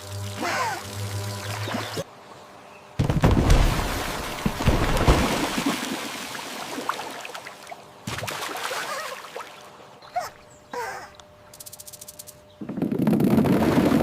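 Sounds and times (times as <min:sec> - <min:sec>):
crackling hiss: 0:11.5 - 0:12.4.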